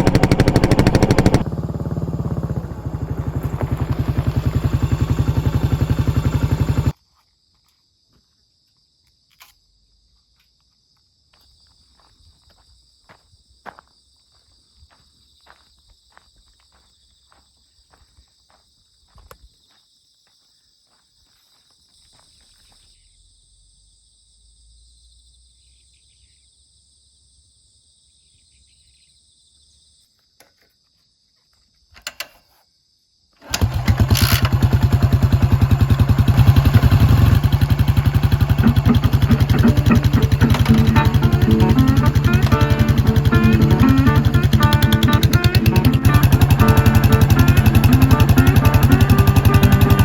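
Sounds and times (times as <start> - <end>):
motorcycle engine running: 0.0 - 7.0, 33.4 - 50.0
high-pitched insect song: 2.8 - 33.4.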